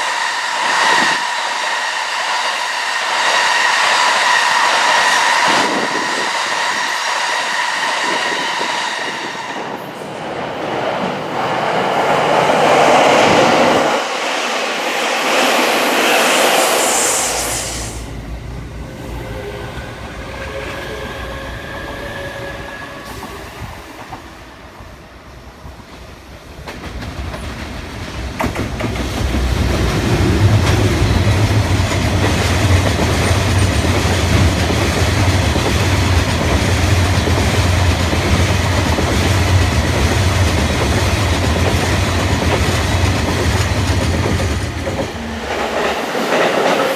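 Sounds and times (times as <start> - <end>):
deep train rumble: 0.0 - 46.9
train rushing noise: 0.0 - 46.9
steady whine: 13.3 - 23.3.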